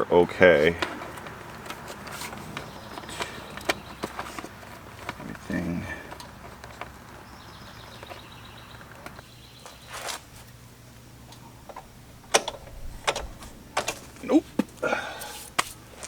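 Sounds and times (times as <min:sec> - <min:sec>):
hands working on motorcycle: 0:00.2 - 0:10.6, 0:11.3 - 0:16.0
sharp clicks and knocks: 0:11.7 - 0:14.8.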